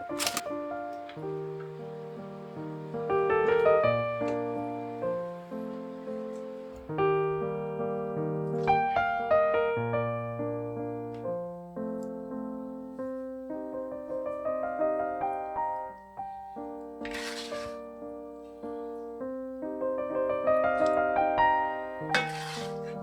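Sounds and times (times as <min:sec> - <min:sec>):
slow gentle piano melody: 0:00.0 - 0:23.0
brief rustling hiss: 0:00.1 - 0:00.5.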